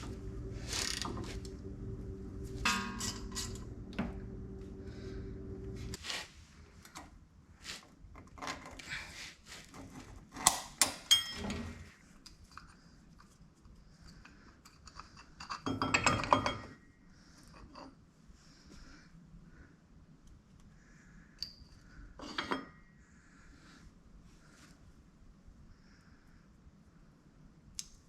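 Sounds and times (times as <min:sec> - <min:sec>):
metal clanking: 0:02.6 - 0:04.4
metal tools knocking and clinking: 0:11.0 - 0:11.6, 0:15.4 - 0:16.8
ringing metallic clinks: 0:11.1 - 0:11.4.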